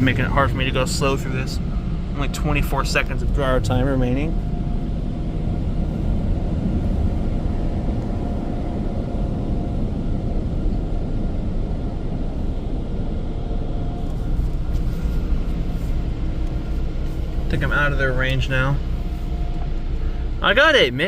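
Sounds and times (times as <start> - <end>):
car wash dryer blowers: 0.0 - 21.0.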